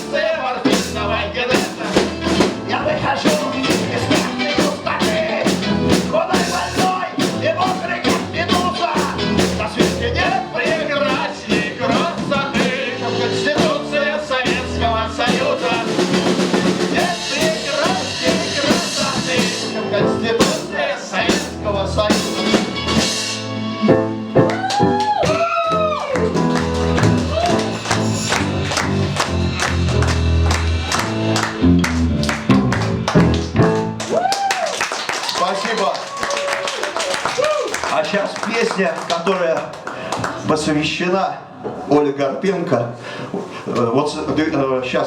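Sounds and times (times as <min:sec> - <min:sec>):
live rock band playing: 0:00.0 - 0:34.2.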